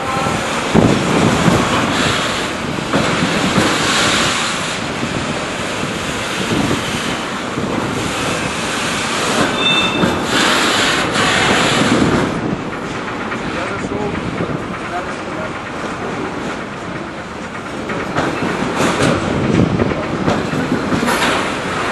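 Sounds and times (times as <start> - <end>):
train wheels rumbling on rails: 0.0 - 21.9
high squeal: 9.4 - 10.3.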